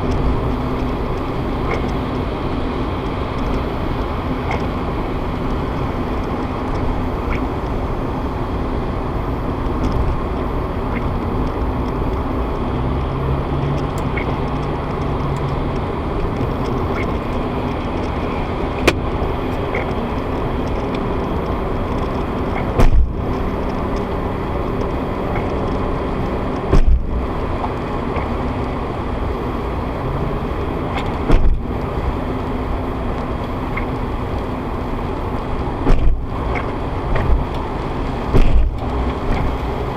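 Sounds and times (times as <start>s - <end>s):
road and engine noise: 0.0s - 39.9s
loud thumps: 22.8s - 23.2s, 26.7s - 27.1s, 31.3s - 31.6s, 38.3s - 38.8s.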